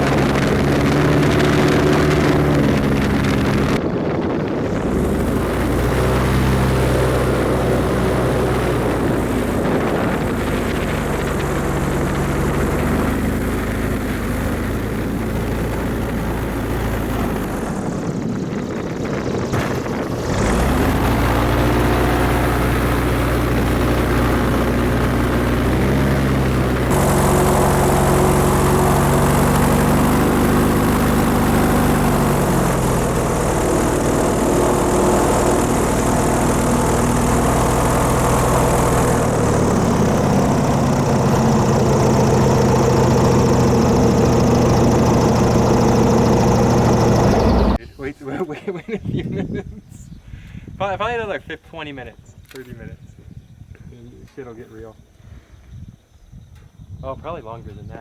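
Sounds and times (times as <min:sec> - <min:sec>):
airboat engine and propeller: 0:00.0 - 0:47.8.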